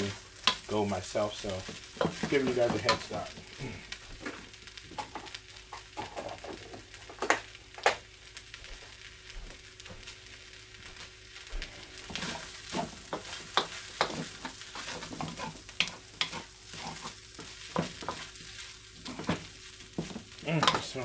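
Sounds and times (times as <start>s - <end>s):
rice sizzling in a wok: 0.0s - 21.0s
wooden spatula scraping and clattering: 1.5s - 3.4s, 12.1s - 21.0s.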